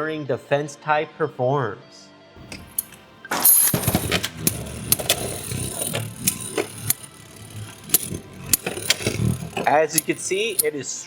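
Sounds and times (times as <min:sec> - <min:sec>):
spinning tops clicking together: 0:02.4 - 0:10.7
spinning tops whirring: 0:02.4 - 0:10.8.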